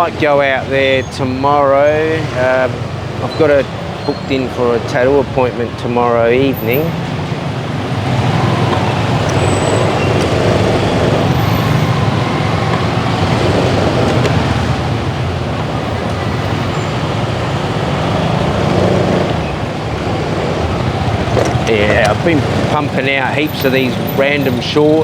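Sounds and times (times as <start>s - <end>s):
road and traffic noise: 0.0s - 25.0s.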